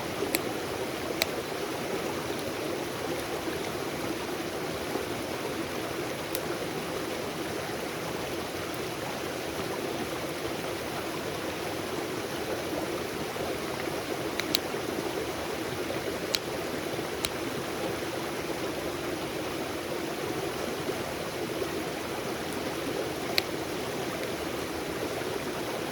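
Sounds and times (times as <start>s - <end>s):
running water rushing: 0.0s - 25.9s.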